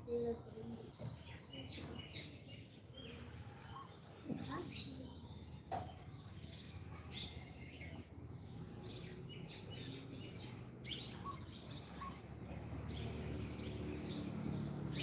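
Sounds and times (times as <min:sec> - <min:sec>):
birds chirping: 0:00.6 - 0:15.0.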